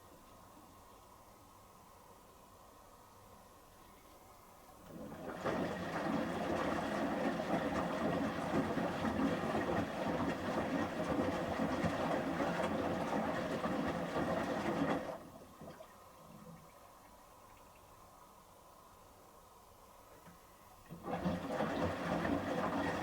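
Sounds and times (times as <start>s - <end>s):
washing machine motor running: 4.8s - 15.8s, 20.8s - 23.0s
water and clothes sloshing: 4.8s - 17.0s, 20.8s - 23.0s.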